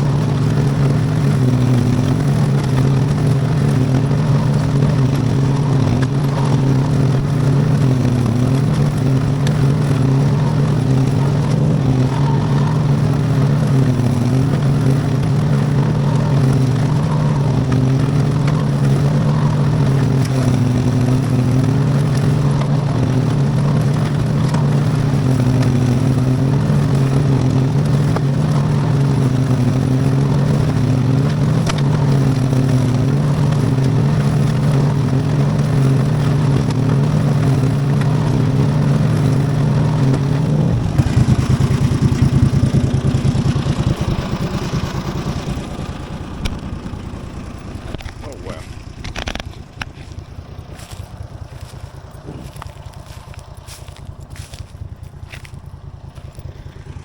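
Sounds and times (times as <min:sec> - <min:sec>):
garden tractor engine mowing: 0:00.0 - 0:57.0.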